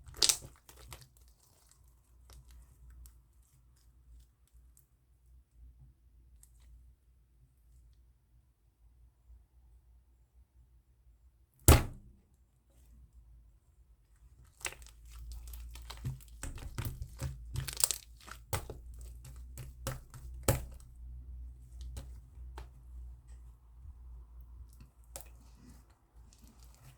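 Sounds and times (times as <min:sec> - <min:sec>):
slime crackling and popping: 0:00.0 - 0:03.2, 0:14.5 - 0:20.9
slime slap: 0:11.7 - 0:12.0.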